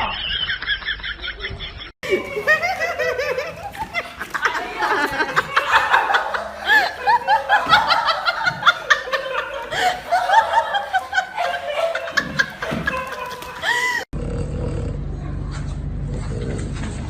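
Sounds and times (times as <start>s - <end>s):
person laughing high-pitched: 1.3s - 14.1s.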